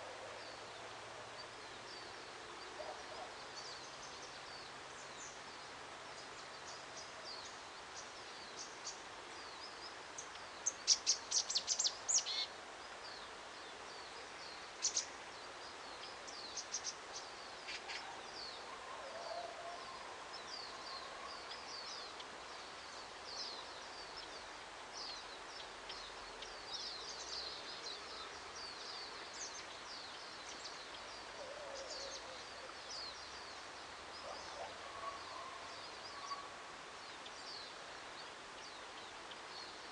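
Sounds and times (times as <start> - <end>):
outdoor background hiss: 0.0 - 39.9
small birds chirping: 0.0 - 39.9.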